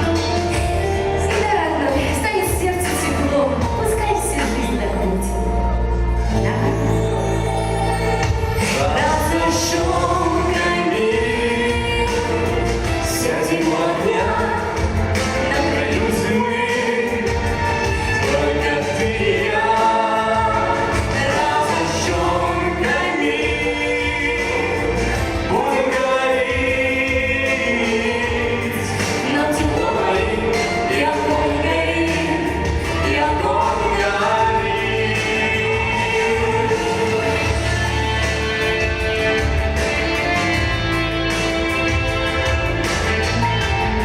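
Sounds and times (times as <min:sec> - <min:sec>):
instrumental accompaniment: 0:00.0 - 0:44.0
steady bass line: 0:00.0 - 0:44.0
person singing ballad: 0:08.0 - 0:44.0.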